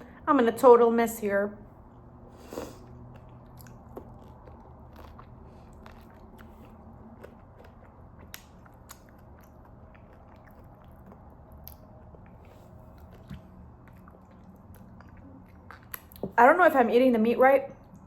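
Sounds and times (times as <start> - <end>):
faint low hum: 0.0 - 18.0
mouth chewing with wet clicks: 2.8 - 16.4.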